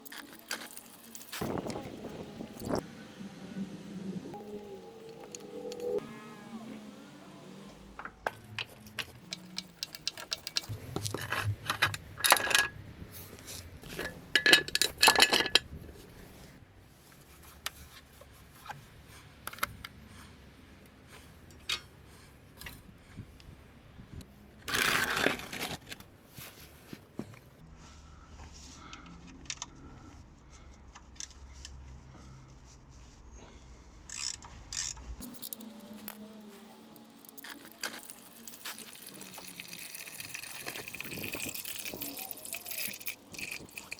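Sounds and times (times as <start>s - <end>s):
metal objects clinking: 0.0s - 1.8s, 8.6s - 12.7s, 13.8s - 15.7s, 34.8s - 43.9s.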